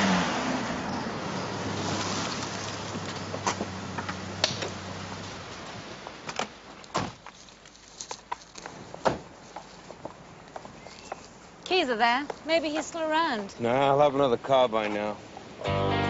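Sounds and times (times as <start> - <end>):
car engine and tyre noise: 0.0 - 11.6.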